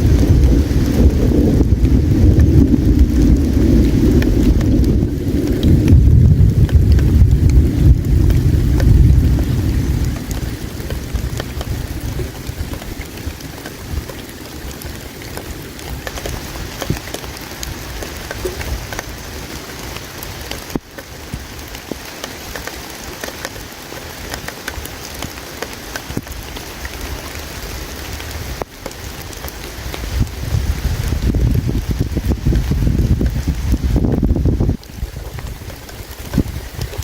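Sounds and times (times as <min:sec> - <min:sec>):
campfire crackling: 0:00.0 - 0:37.0
river water flowing: 0:00.0 - 0:37.0.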